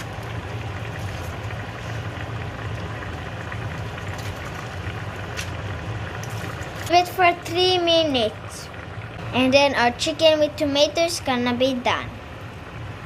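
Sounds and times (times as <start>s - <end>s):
low hum: 0.0s - 9.9s
stew bubbling in a pot: 0.0s - 13.0s.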